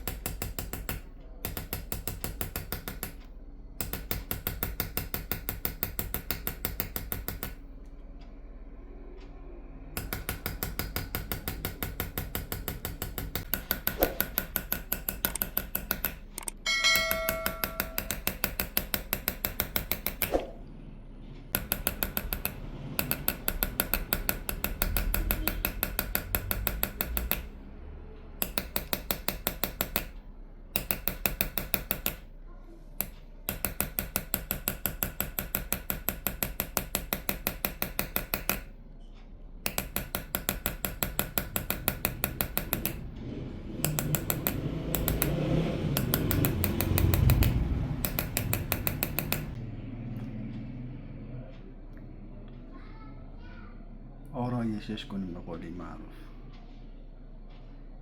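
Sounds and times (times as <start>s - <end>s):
hammer tapping chisel into metal: 0.0s - 7.6s, 10.0s - 20.5s, 21.5s - 27.6s, 28.4s - 32.3s, 33.0s - 38.8s, 39.6s - 43.0s, 43.8s - 49.6s
metallic ringing note: 16.6s - 18.2s.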